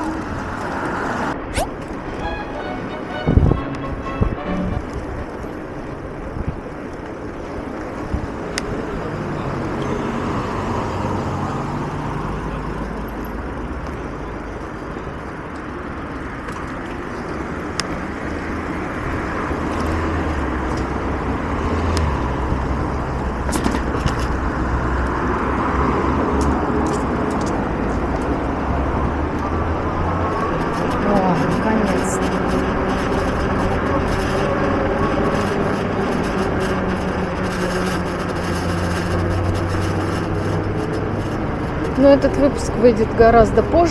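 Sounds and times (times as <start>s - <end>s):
cars driving past: 0.0s - 43.9s
low engine hum: 0.0s - 43.9s.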